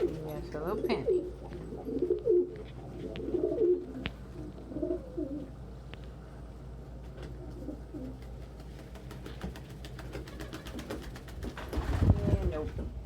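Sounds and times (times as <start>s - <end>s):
pigeons cooing: 0.0s - 5.7s, 7.2s - 8.6s.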